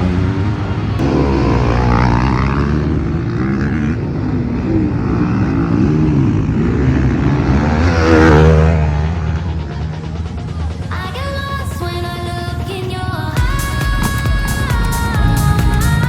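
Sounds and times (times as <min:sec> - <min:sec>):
motocross bike engines revving: 0:00.0 - 0:11.2
pop music: 0:09.1 - 0:16.0.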